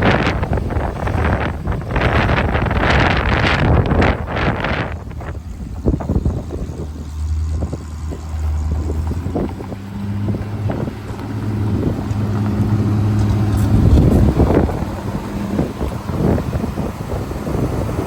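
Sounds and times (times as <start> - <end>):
truck engine running: 0.0 - 18.0
wind buffeting microphone: 0.0 - 18.0.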